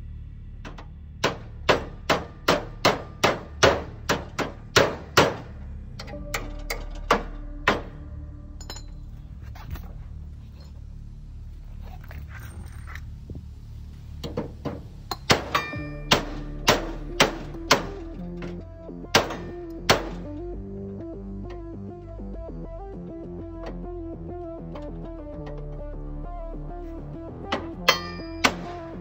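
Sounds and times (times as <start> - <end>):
hammer striking steel: 0.6 - 9.0, 14.2 - 18.5, 19.1 - 20.3, 27.5 - 29.0.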